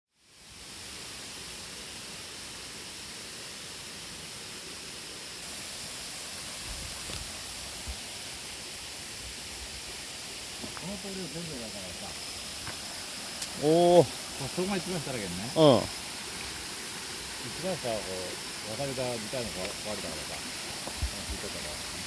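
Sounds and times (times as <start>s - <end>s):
stream water rushing: 0.3s - 22.0s.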